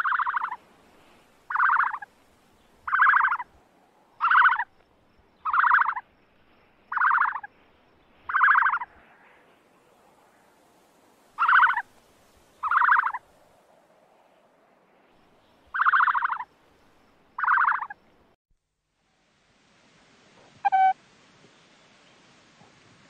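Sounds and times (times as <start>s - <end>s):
ostrich raspy calls: 0.0s - 0.6s, 1.5s - 2.1s, 2.8s - 3.6s, 4.2s - 4.7s, 5.4s - 6.0s, 6.9s - 7.5s, 8.3s - 9.0s, 11.4s - 11.9s, 12.6s - 13.2s, 15.7s - 16.5s, 17.4s - 18.0s
brief pitched chirp: 20.6s - 21.0s.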